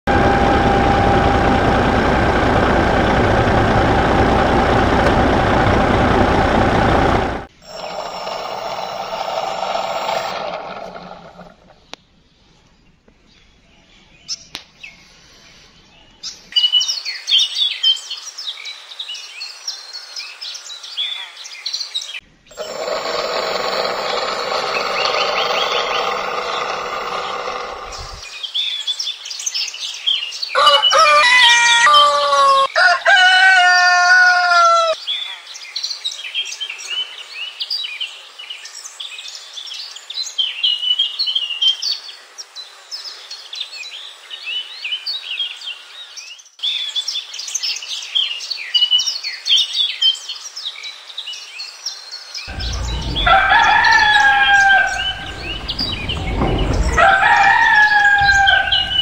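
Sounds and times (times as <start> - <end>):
steady hum: 0.1 - 10.3, 52.5 - 59.0
rooster crowing: 30.6 - 35.0, 52.5 - 59.0.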